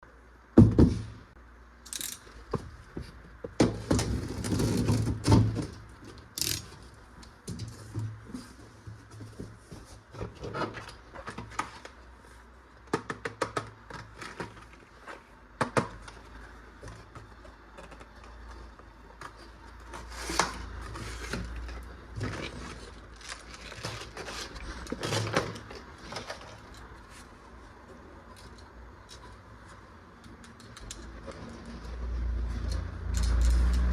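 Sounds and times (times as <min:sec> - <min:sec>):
toys and packaging clicking and scraping: 0:01.9 - 0:02.4, 0:03.8 - 0:06.8, 0:12.9 - 0:16.2, 0:17.7 - 0:27.3.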